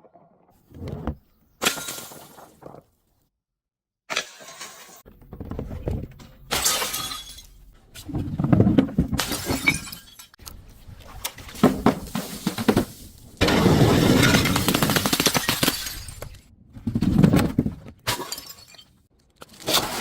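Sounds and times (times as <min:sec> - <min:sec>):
glass bottles smashing: 0:06.5 - 0:07.6, 0:09.2 - 0:10.4, 0:11.8 - 0:16.4, 0:18.1 - 0:19.0.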